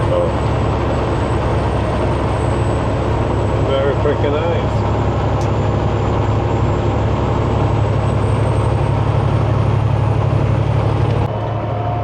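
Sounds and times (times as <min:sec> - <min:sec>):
truck diesel engine droning: 0:00.0 - 0:12.0
high turbo whistle: 0:11.3 - 0:12.0.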